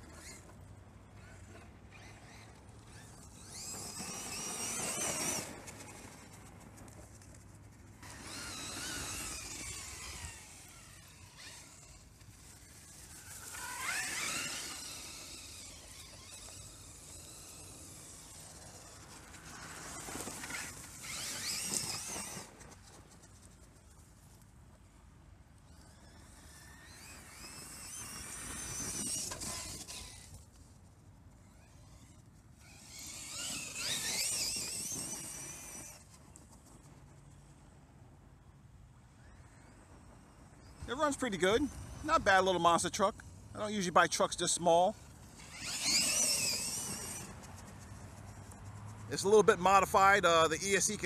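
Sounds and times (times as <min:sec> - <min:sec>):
electric motor whining: 0:01.2 - 0:06.0, 0:08.0 - 0:22.6, 0:25.7 - 0:30.4, 0:31.5 - 0:36.1, 0:45.0 - 0:47.6.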